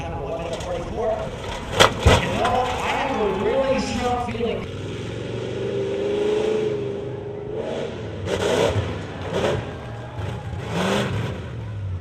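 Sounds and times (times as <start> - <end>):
race truck engine revving: 0.6 - 12.0.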